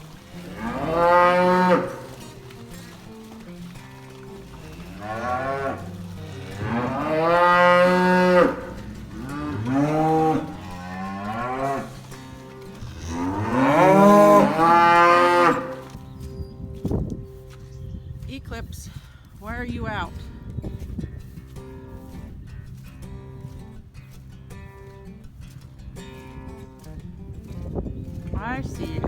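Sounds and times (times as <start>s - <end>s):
cows mooing: 0.0s - 16.2s, 26.0s - 26.9s.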